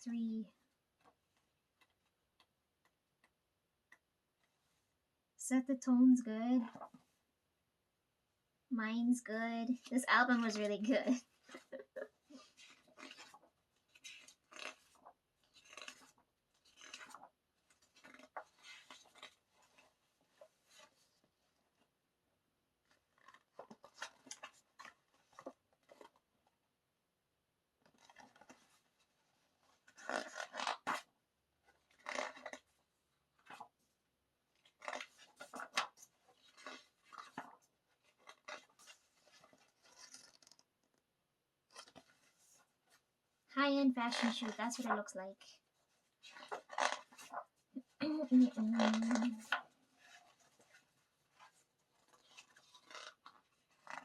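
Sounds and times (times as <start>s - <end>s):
paper pages rustling: 9.7s - 21.9s, 22.8s - 26.3s, 27.8s - 41.1s, 41.7s - 43.1s, 44.1s - 54.0s.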